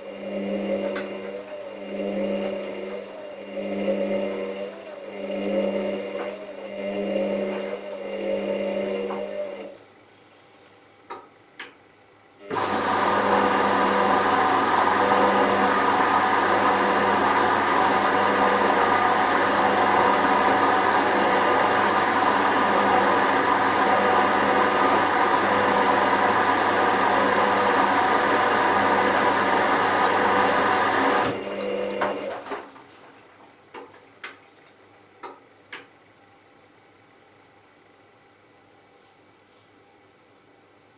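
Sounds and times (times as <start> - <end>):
washing machine motor whine: 0.0 - 9.9, 12.4 - 34.9.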